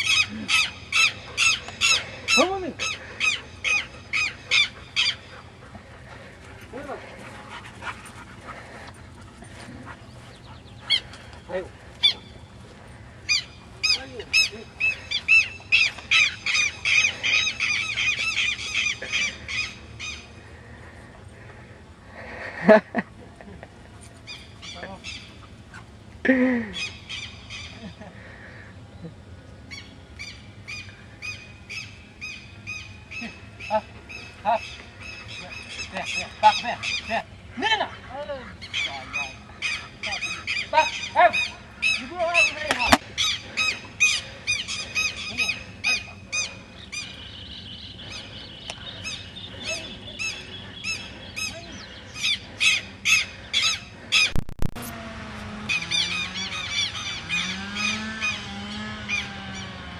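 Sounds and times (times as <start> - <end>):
birds sharp high-pitched calls: 0.0 - 7.6, 9.9 - 21.0, 24.2 - 26.0, 26.7 - 28.7, 29.6 - 54.9, 55.6 - 59.8
dog panting: 1.0 - 17.7.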